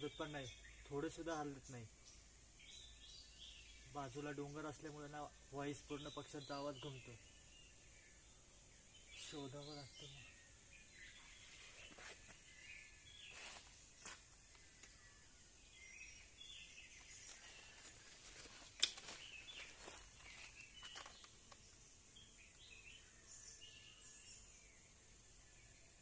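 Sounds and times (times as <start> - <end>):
birds chirping faintly: 0.0 - 26.0
sharp click: 18.7 - 19.2.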